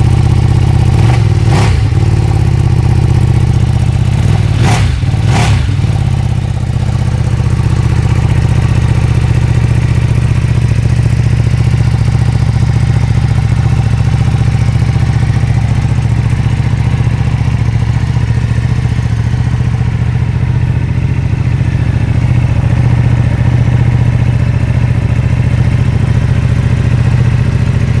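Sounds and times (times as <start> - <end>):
motorcycle engine idling: 0.0 - 28.0.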